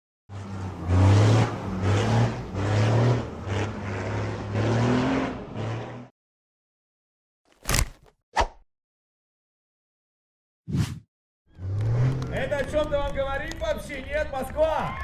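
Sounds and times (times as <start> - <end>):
diesel truck engine revving: 0.6 - 6.1.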